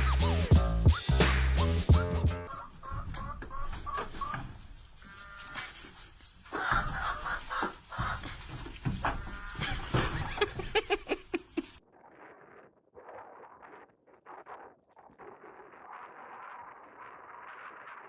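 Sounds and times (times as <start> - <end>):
chicken clucking: 2.5 - 11.8.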